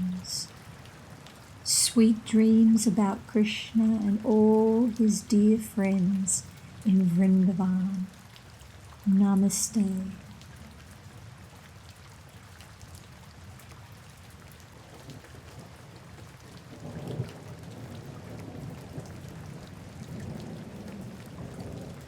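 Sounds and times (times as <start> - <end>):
steady rainfall: 0.0 - 22.0
rumble of thunder: 16.5 - 22.0.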